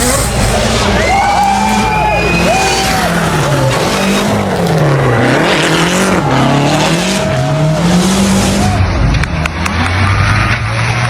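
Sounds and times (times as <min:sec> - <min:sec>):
rally car engine revving: 0:00.0 - 0:11.0.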